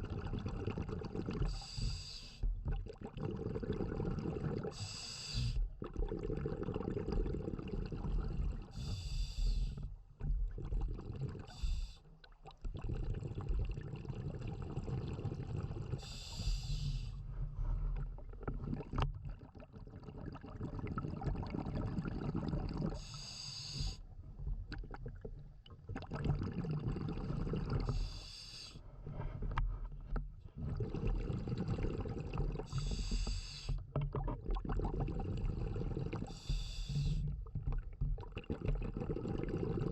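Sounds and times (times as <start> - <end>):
exhaled air bubbling: 0.0 - 39.9
regulator inhalation hiss: 1.6 - 2.4, 4.8 - 5.6, 16.0 - 17.2, 23.0 - 24.0, 27.9 - 28.8, 32.7 - 33.8, 36.3 - 37.2.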